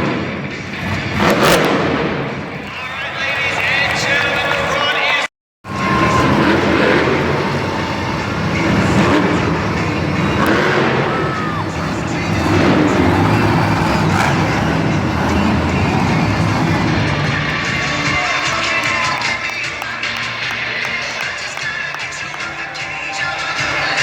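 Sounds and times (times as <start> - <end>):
monster truck engines running: 0.0 - 24.0
music over pa system: 14.4 - 24.0.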